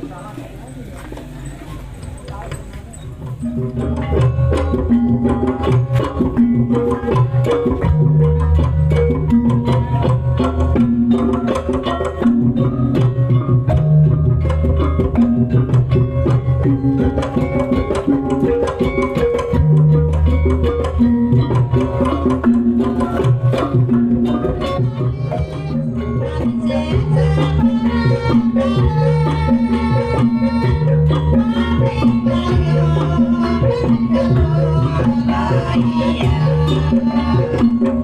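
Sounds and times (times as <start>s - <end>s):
hand drums and percussion: 0.0s - 38.0s.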